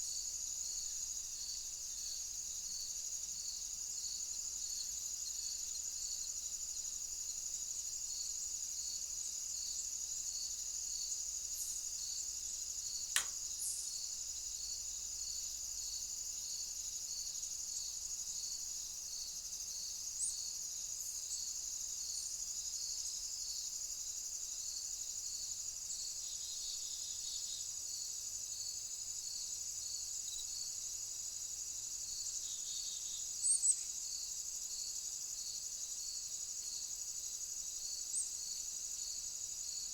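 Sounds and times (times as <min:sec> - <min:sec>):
insects trilling: 0:00.0 - 0:39.9
pulsing insect chirp: 0:00.1 - 0:39.9
sharp click: 0:13.1 - 0:13.4.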